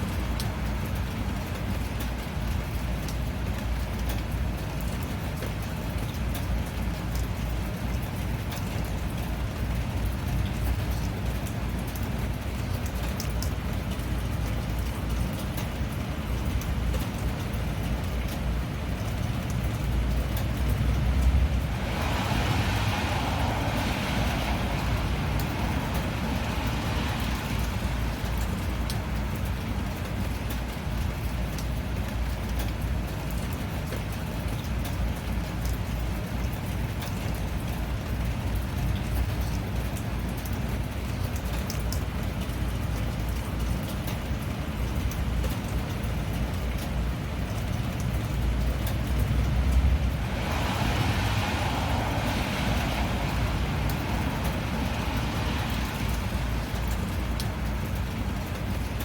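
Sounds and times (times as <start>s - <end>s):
rain pattering: 0.0s - 59.0s
rushing hiss: 50.1s - 57.1s.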